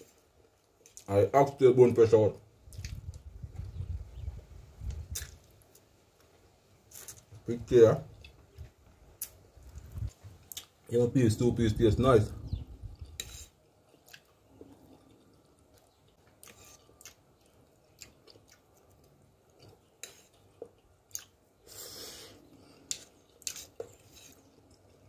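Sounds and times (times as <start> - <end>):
man chewing food: 2.6 - 3.8, 4.8 - 7.4, 8.1 - 10.9, 12.7 - 25.0.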